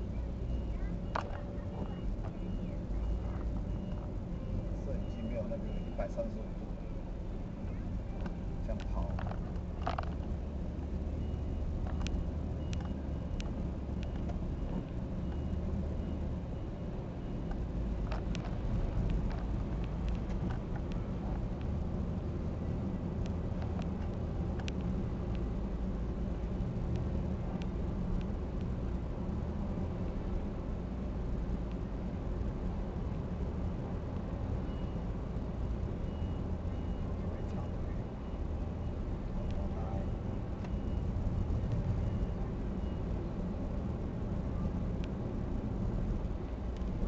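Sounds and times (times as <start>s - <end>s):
faint high beep: 0.0s - 19.0s, 34.6s - 43.3s
car engine and road rumble: 0.0s - 47.0s.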